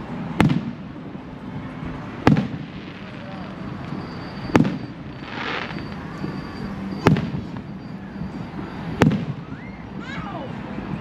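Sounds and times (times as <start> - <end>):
fireworks bangs: 0.2 - 1.1, 1.9 - 7.8, 8.8 - 9.6
firework hiss: 2.2 - 7.7.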